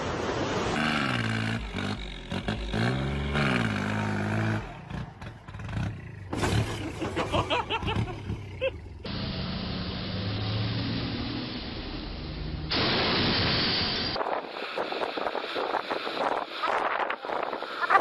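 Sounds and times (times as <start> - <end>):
heavy engine revving: 0.7 - 11.8
clattering: 6.3 - 7.7.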